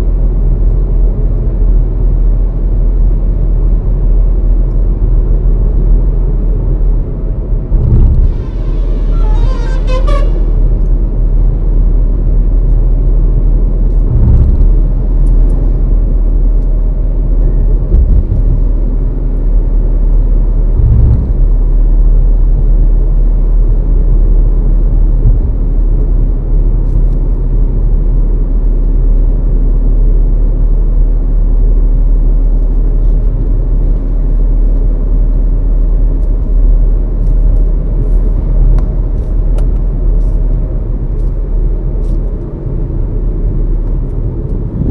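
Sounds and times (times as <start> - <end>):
car engine and road noise: 0.0 - 44.9
short low thumps: 7.6 - 11.2, 14.0 - 16.1, 17.5 - 19.0, 20.7 - 21.7, 25.2 - 25.9, 44.5 - 44.9.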